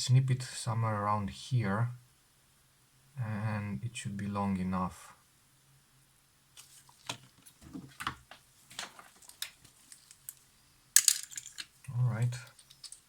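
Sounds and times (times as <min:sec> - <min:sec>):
faint steady hum: 0:00.0 - 0:13.0
small tools clicking on workbench: 0:12.5 - 0:13.0.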